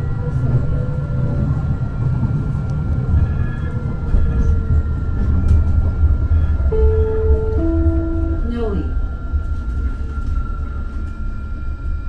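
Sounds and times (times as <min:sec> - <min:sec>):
train wheels rumbling on rail: 0:00.0 - 0:12.0
high whine: 0:06.4 - 0:11.4.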